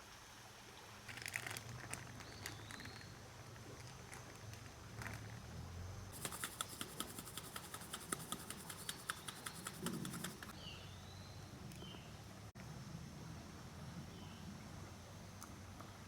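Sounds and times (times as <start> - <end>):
faint outdoor background: 0.0 - 16.0
rapid clicks: 6.2 - 10.6
bird chirping: 6.2 - 12.1.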